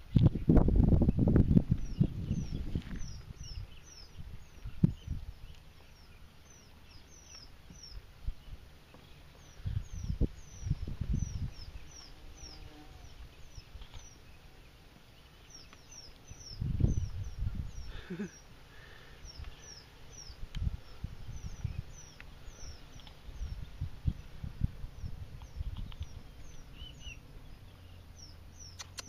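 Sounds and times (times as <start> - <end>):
bird high thin chirps: 25.0 - 29.0.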